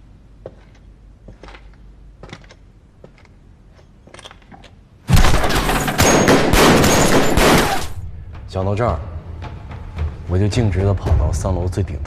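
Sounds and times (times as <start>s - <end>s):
low steady hum: 0.0s - 10.3s
automatic gunfire: 5.1s - 8.0s.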